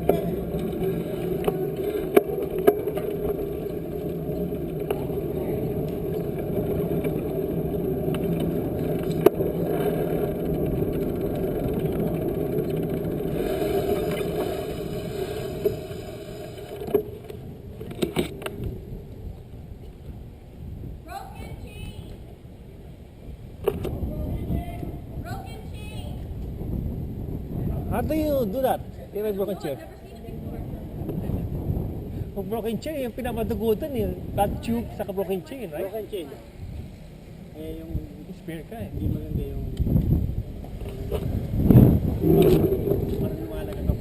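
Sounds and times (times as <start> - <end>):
bicycle tyre and wind noise: 0.0 - 35.5, 36.4 - 44.0.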